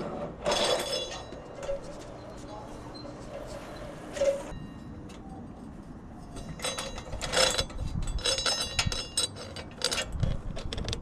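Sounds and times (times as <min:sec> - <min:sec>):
metallic clinking and rattling: 0:06.2 - 0:11.0.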